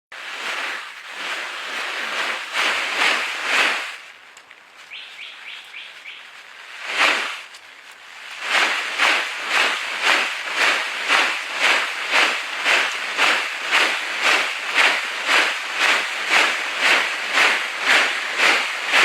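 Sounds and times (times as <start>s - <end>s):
rustling wing swishes: 0.2s - 19.0s
short falling bird chirps: 4.9s - 6.3s.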